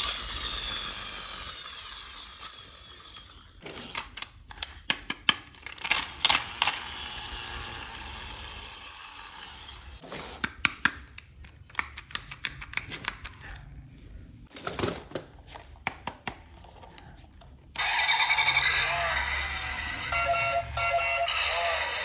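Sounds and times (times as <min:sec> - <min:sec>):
plastic toy pieces clicking: 0:00.0 - 0:07.1, 0:10.4 - 0:13.4.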